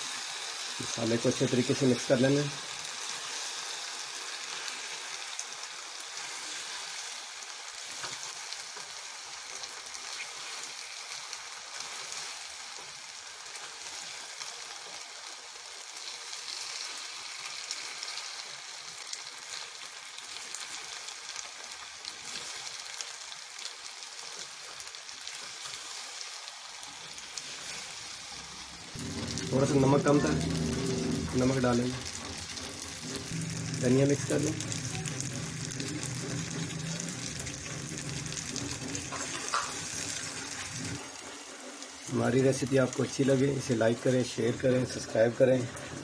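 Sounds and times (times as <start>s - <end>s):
pasta sizzling in a frying pan: 0.0s - 46.0s
spatula stirring: 28.9s - 41.1s.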